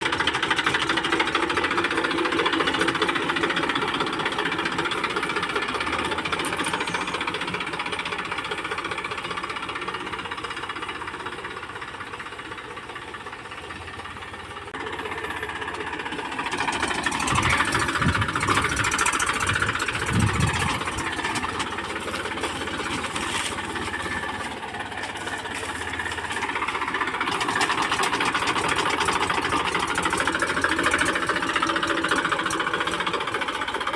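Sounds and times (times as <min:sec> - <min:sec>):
diesel tractor engine running: 0:00.0 - 0:33.9.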